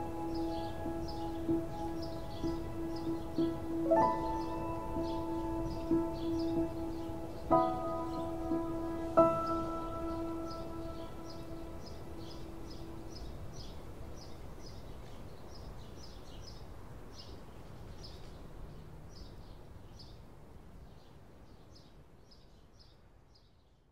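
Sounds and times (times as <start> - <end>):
lingering musical note: 0.0 - 13.7
bird chirping: 0.0 - 20.2.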